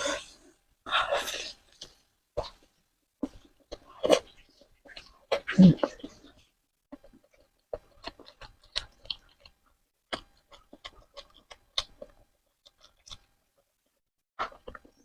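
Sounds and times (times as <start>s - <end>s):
wet chewing mouth clicks: 6.9s - 13.3s.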